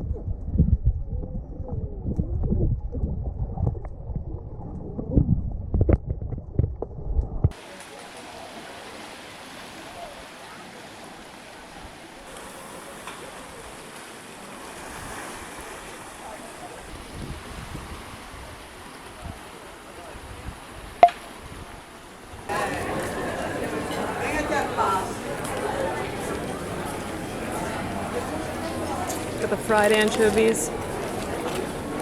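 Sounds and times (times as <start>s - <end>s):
muffled low rumbling: 0.0s - 7.5s
wind: 0.0s - 32.0s
sea waves: 7.5s - 32.0s.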